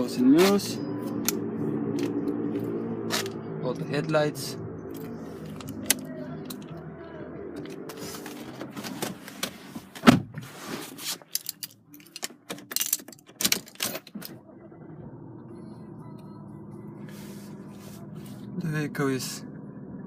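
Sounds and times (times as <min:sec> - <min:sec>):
steady low hum: 0:00.0 - 0:10.0, 0:14.4 - 0:20.0.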